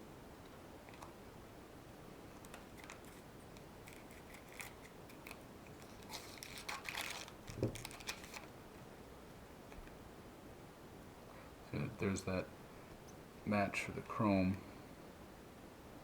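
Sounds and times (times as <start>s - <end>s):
cards clicking and rustling: 3.8s - 8.5s.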